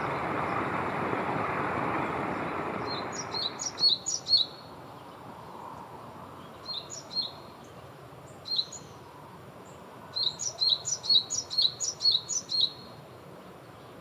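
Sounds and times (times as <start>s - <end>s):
low background hiss: 0.0s - 14.0s
small bird chirping: 2.3s - 4.7s, 8.4s - 9.0s, 10.2s - 12.9s.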